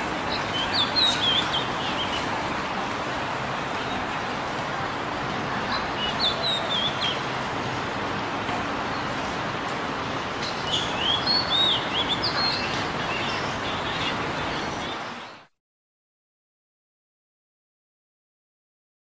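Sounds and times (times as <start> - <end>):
steady background hiss: 0.0 - 15.4.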